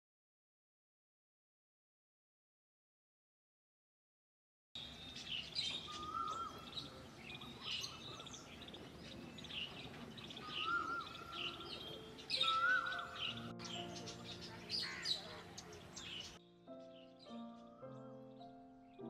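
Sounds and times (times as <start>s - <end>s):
birds chirping and calling: 4.8s - 19.0s
low warbling whistled bird call: 5.8s - 8.5s, 10.4s - 13.6s.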